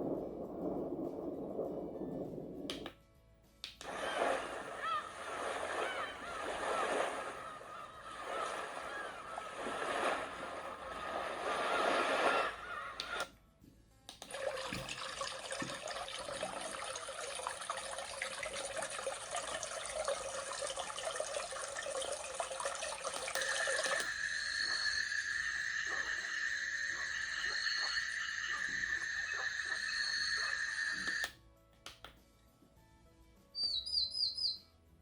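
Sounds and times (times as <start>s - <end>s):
ocean surf: 3.8s - 13.2s, 23.3s - 31.2s
trickling stream: 14.3s - 31.3s
frogs and insects chirping: 23.3s - 31.3s.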